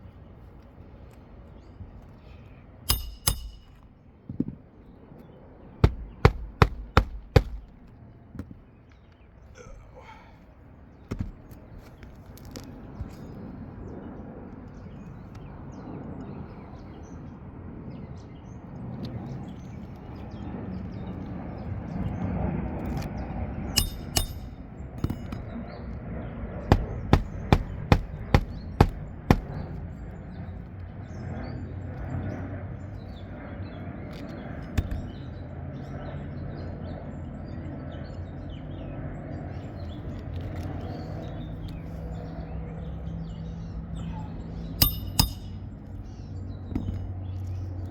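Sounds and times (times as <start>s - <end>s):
hammer striking nails: 2.9s - 3.9s, 5.8s - 7.9s, 23.8s - 25.5s, 26.7s - 29.8s, 34.8s - 35.2s, 44.8s - 45.7s.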